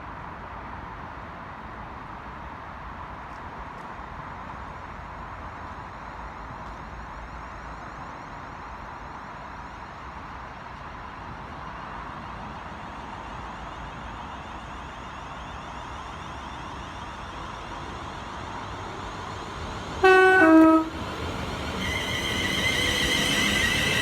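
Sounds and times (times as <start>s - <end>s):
train running on rails: 0.2s - 24.0s.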